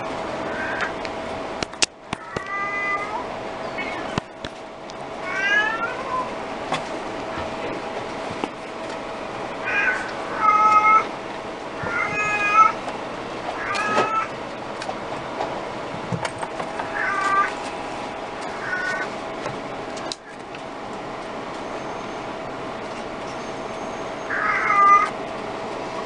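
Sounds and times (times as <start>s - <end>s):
kitten meowing: 5.3s - 6.3s, 9.6s - 11.1s, 11.8s - 12.8s, 13.6s - 14.3s.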